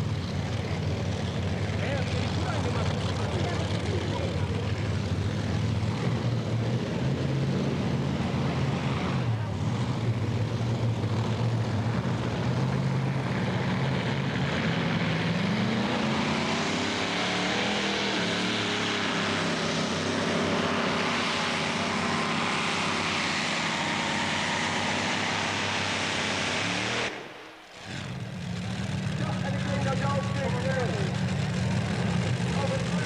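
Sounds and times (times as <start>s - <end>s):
tractor engine under full load: 0.0s - 33.0s.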